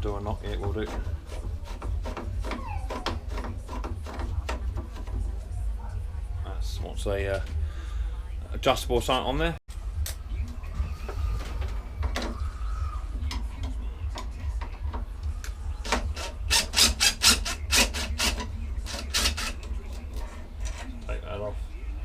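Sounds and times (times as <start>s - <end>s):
metal rubbing: 0.0s - 5.7s, 10.6s - 21.6s.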